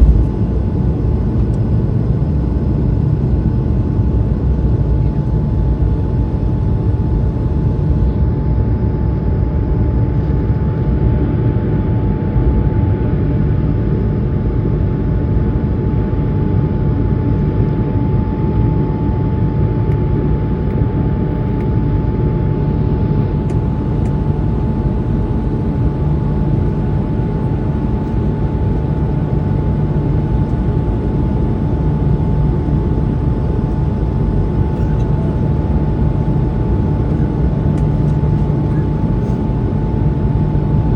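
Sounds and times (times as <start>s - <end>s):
jet engines rumbling: 0.0s - 1.9s
jet engine high whine: 0.0s - 40.9s.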